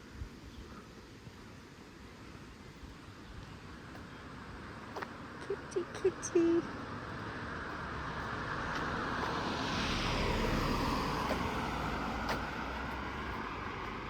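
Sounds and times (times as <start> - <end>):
vehicle passing by: 6.6 - 14.0.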